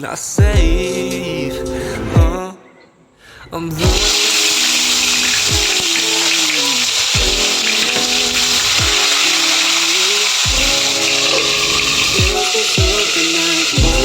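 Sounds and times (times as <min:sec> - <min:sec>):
background music with kick drum: 0:00.4 - 0:01.0, 0:02.2 - 0:02.4, 0:03.8 - 0:04.2, 0:05.5 - 0:05.8, 0:07.2 - 0:09.2, 0:10.5 - 0:11.4, 0:12.1 - 0:13.1, 0:13.8 - 0:14.0
electric appliance whirring hiss: 0:03.9 - 0:14.0.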